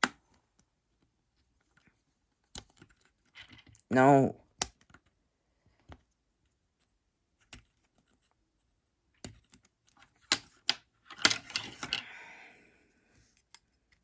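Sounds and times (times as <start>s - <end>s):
plastic parts clicking and tapping: 9.2s - 12.0s.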